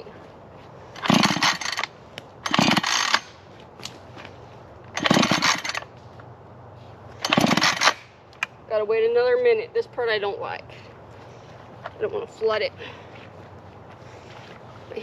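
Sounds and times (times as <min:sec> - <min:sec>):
chainsaw recoil starter pulls: 0:01.0 - 0:03.3, 0:05.0 - 0:05.9, 0:07.2 - 0:08.1
chainsaw engine turning over: 0:01.0 - 0:03.4, 0:04.9 - 0:05.9, 0:07.2 - 0:08.1.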